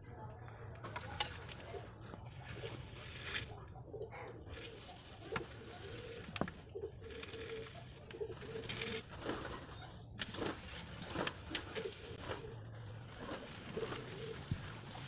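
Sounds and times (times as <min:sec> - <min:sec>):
bird cooing: 0:01.6 - 0:10.0, 0:11.6 - 0:15.0.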